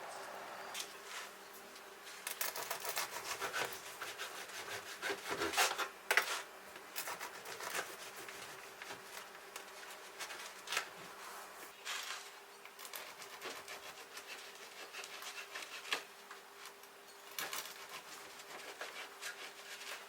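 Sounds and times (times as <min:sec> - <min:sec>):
faint low hum: 0:00.0 - 0:01.8
rustling and rubbing of objects: 0:00.0 - 0:20.0.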